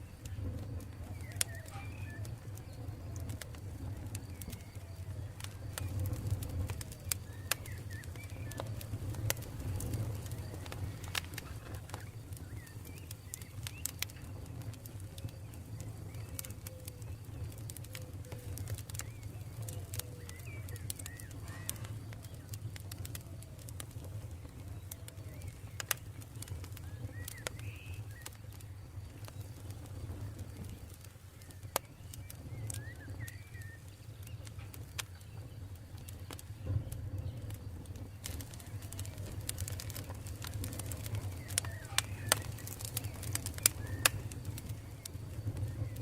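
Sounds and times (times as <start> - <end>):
campfire crackling: 0.0 - 46.0
sharp pops of fire: 0.0 - 46.0
birds calling: 38.2 - 46.0.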